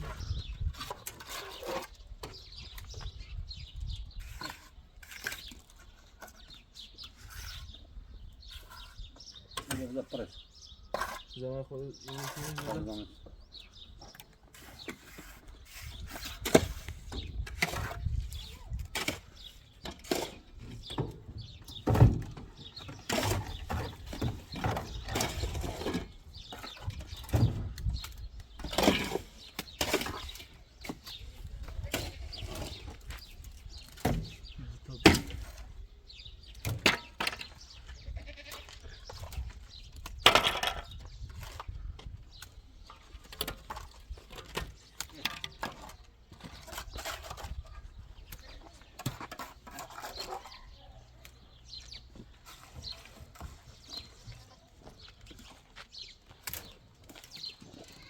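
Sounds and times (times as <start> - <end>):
hand tools knocking and scraping: 14.0 - 35.7, 39.0 - 58.0
goat bleating: 38.0 - 38.8.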